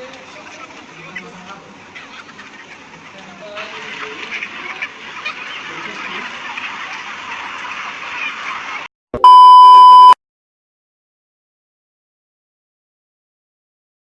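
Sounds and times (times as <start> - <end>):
high electronic beep: 9.2 - 10.2.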